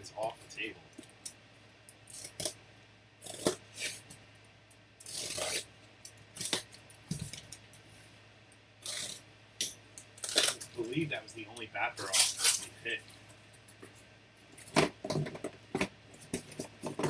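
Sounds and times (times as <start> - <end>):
packaging tearing: 5.0 - 5.7, 8.8 - 9.2, 10.2 - 10.8, 12.0 - 12.8.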